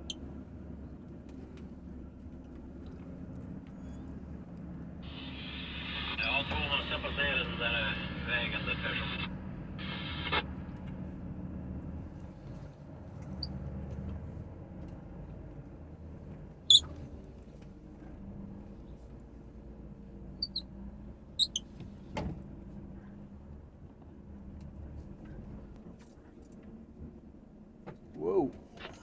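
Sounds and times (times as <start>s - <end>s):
diesel truck engine running: 0.0s - 29.0s
high-pitched squeaks: 21.4s - 21.6s.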